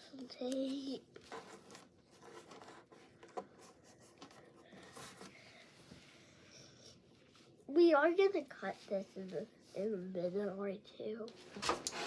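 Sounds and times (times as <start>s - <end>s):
tape and cardboard rustling: 0.1s - 6.0s.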